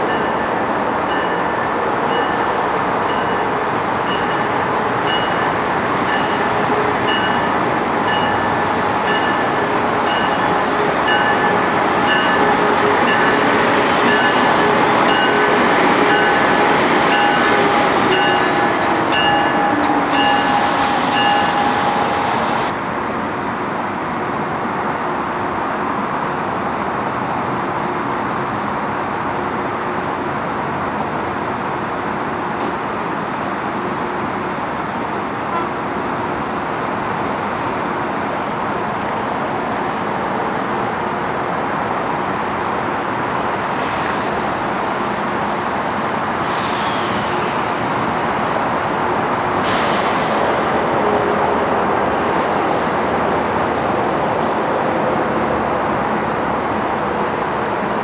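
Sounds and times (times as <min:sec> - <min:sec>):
standing train rumble: 0:00.0 - 0:58.0
train squealing whine: 0:04.1 - 0:22.9, 0:46.4 - 0:51.9.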